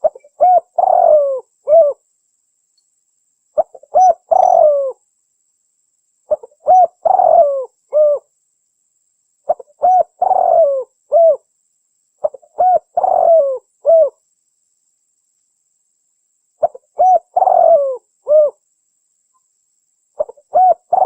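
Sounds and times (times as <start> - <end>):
dove cooing: 0.0 - 2.0, 3.6 - 5.0, 6.3 - 8.3, 9.5 - 11.5, 12.2 - 14.2, 16.6 - 18.6, 20.2 - 21.0.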